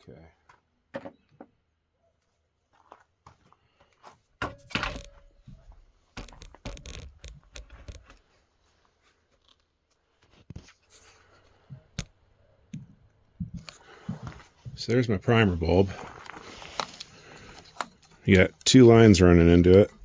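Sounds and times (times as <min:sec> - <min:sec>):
rustling and scraping: 0:04.9 - 0:12.0, 0:13.4 - 0:20.0
clicks and scrapes on plastic: 0:06.2 - 0:08.2.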